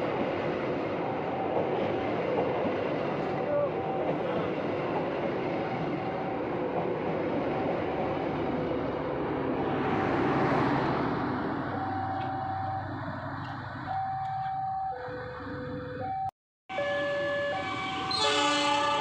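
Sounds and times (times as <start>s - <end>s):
train wheels rumbling on rails: 0.0s - 14.7s.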